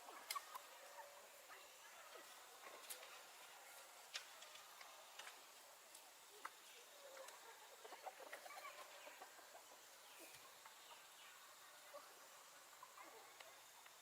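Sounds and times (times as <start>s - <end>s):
faint chickens clucking: 6.4s - 14.0s.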